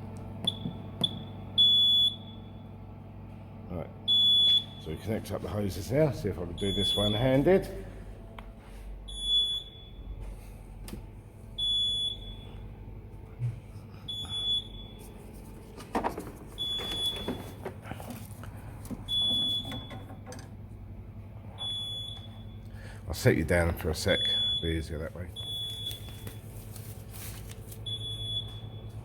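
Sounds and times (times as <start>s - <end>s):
machine beeping: 4.0s - 5.1s, 6.5s - 7.6s, 16.6s - 17.7s.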